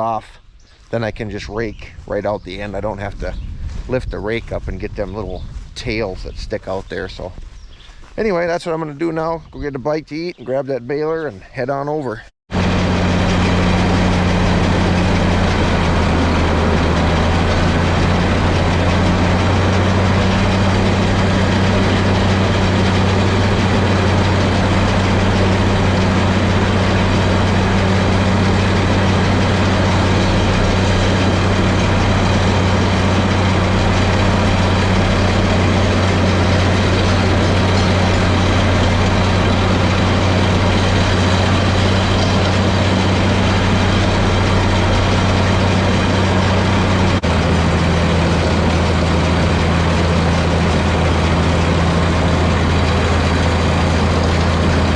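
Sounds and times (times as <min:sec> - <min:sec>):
tractor diesel engine running: 0:00.9 - 0:10.7, 0:12.5 - 0:54.9.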